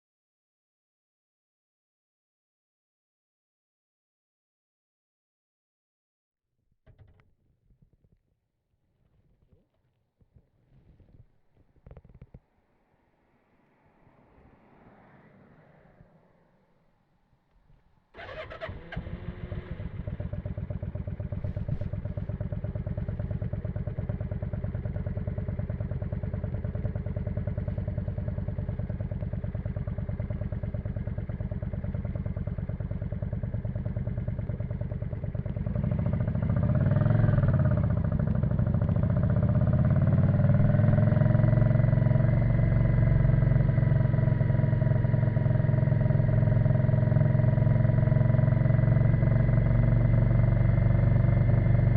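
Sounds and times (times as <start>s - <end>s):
motorcycle engine idling and revving: 17.7s - 51.9s.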